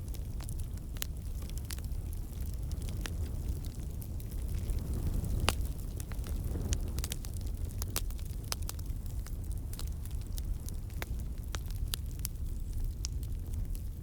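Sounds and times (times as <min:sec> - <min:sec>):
campfire flame rumble: 0:00.0 - 0:14.0
fire crackling and popping: 0:00.0 - 0:14.0.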